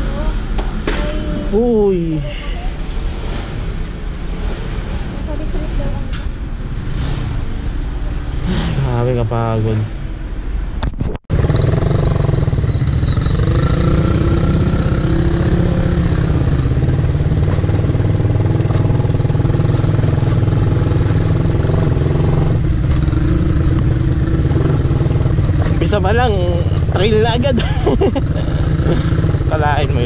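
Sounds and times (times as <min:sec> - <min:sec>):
motorcycle engine running: 0:11.3 - 0:30.0.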